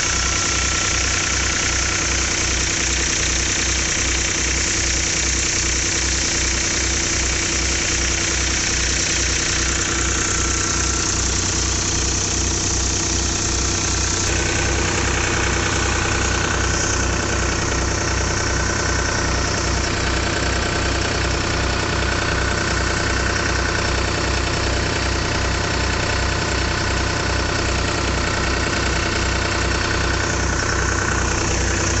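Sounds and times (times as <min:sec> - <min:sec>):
tractor diesel engine running: 0:00.0 - 0:32.0
machinery whine: 0:08.8 - 0:21.6.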